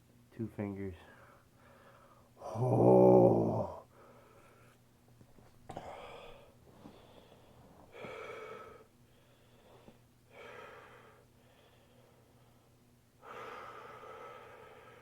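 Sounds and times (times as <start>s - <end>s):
man breathing deeply: 1.0s - 2.6s, 5.7s - 15.0s.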